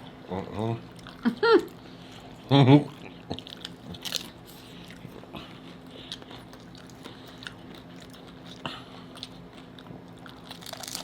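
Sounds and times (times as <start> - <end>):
chewing and crunching tacos: 0.0 - 11.0.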